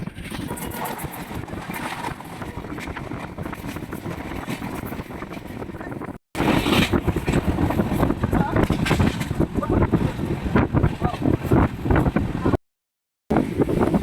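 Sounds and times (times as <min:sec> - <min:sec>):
rattling and clatter: 0:00.0 - 0:10.2
train rumble inside carriage: 0:00.0 - 0:12.6.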